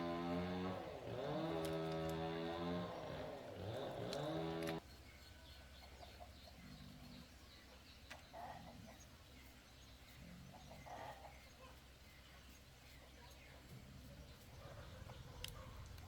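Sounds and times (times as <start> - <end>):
chickens clucking: 7.7 - 9.5, 10.1 - 11.8.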